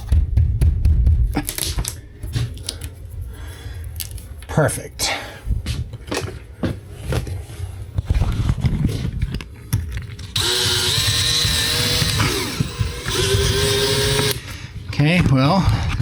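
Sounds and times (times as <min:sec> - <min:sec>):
cordless drill running: 0:10.4 - 0:14.4.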